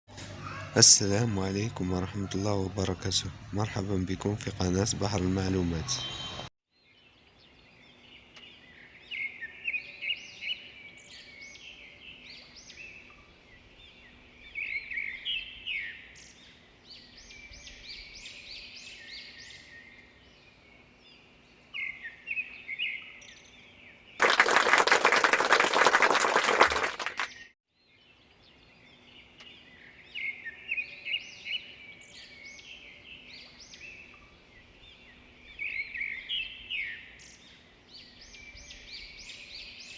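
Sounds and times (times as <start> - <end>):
birds chirping: 0.1 - 39.9.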